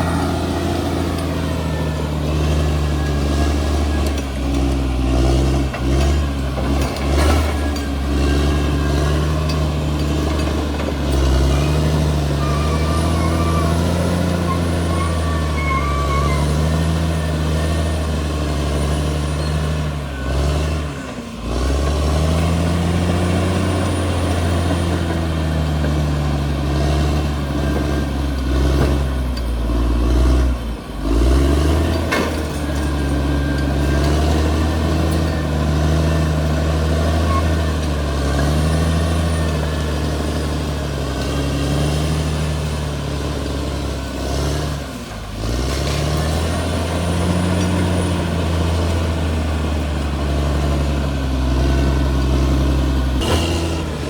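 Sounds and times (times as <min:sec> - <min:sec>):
bulldozer diesel engine under load: 0:00.0 - 0:54.0.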